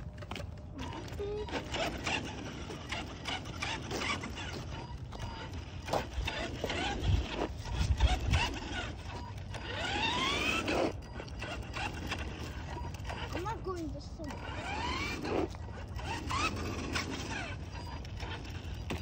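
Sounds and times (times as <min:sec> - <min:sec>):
chassis and wheels rattling: 0:00.0 - 0:19.0
rc truck electric motor whining: 0:00.0 - 0:19.0.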